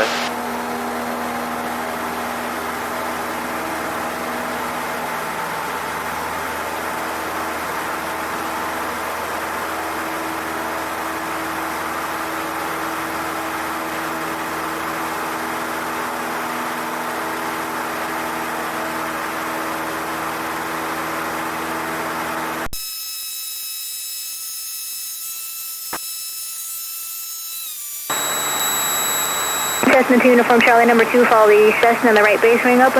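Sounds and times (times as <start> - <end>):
electronic whine: 0.0 - 0.4, 22.8 - 32.4
aircraft engine and propeller: 0.0 - 22.6, 28.1 - 32.9
click: 28.1 - 30.0.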